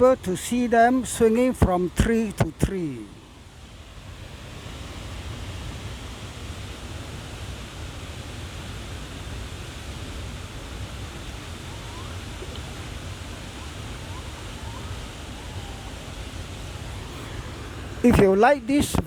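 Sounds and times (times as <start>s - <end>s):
waterfall rushing: 0.0s - 19.0s
gibbon calling: 11.1s - 19.0s.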